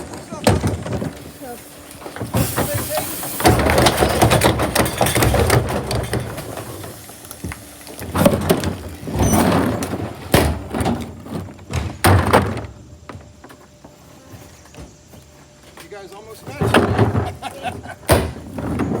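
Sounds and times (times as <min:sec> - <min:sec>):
loud clattering and banging: 0:00.0 - 0:01.4, 0:02.0 - 0:07.1
garbage truck engine rumble: 0:00.0 - 0:15.1, 0:16.4 - 0:19.0.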